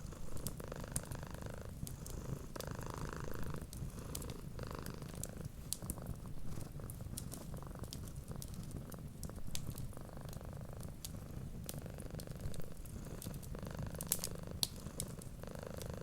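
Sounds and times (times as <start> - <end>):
cat purring: 0.0 - 16.0
wood fire crackling: 3.6 - 15.9.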